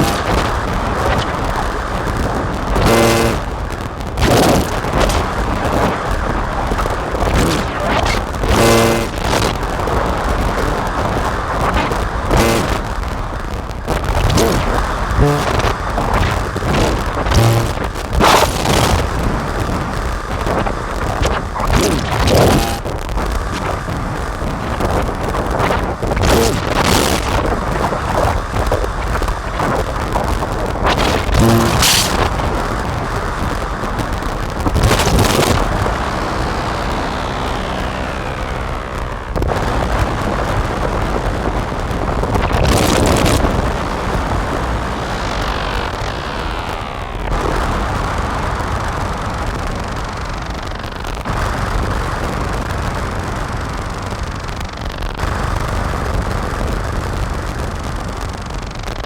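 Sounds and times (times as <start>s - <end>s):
distorted synthesizer noise drone: 0.0s - 59.0s
rumbling low end: 0.0s - 59.0s
short pitched tones: 2.8s - 3.5s, 17.3s - 18.6s, 22.2s - 22.9s, 31.4s - 32.2s
falling synth pitch glide: 22.4s - 22.8s, 35.5s - 39.4s.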